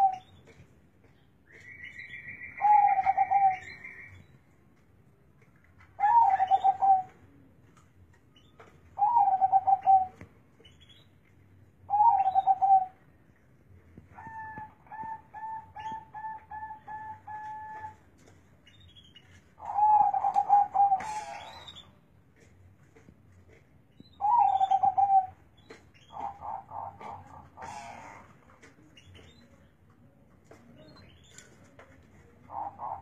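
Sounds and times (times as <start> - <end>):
zebra dove cooing: 2.6 - 3.8, 6.0 - 7.1, 19.6 - 21.7, 26.2 - 28.3, 32.4 - 33.0.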